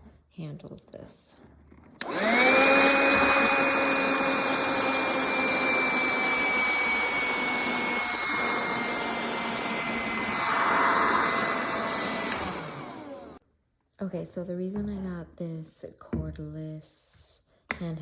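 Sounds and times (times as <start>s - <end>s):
handheld vacuum motor whining: 1.9s - 13.4s
vacuum suction rush: 2.0s - 13.4s.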